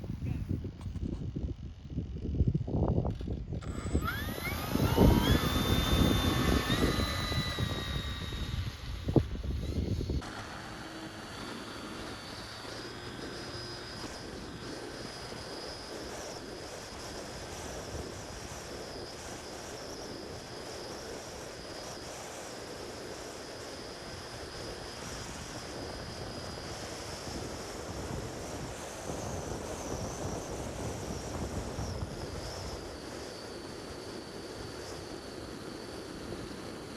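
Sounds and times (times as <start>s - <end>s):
wind buffeting microphone: 0.0s - 10.2s, 24.7s - 33.8s
model plane electric motor whine: 0.7s - 36.9s.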